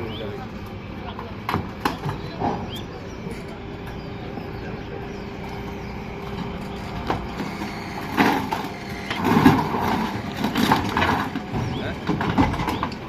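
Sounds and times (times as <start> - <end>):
engine hum: 0.0 - 13.0
knocking and clatter: 8.2 - 13.0.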